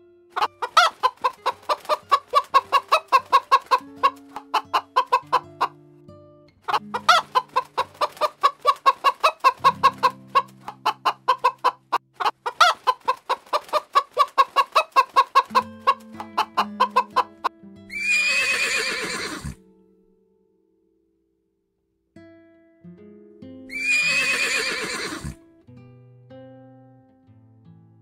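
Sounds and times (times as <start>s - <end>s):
soft background music: 0.0s - 11.8s, 15.3s - 20.4s
hens clucking: 0.4s - 5.7s, 6.7s - 19.6s.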